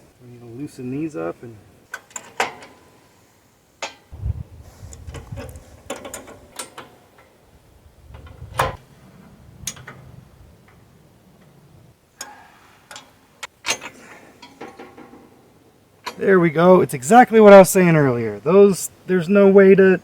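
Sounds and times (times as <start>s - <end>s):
low handling rumble: 4.2s - 6.5s, 7.5s - 12.0s.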